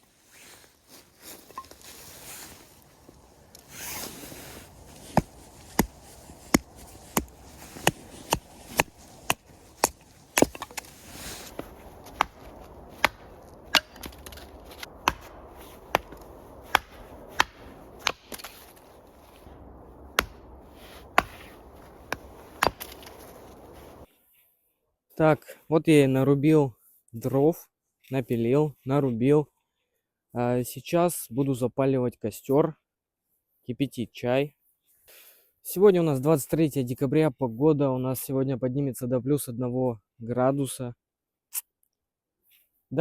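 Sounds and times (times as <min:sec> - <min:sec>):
axe chopping firewood: 0:04.7 - 0:24.0.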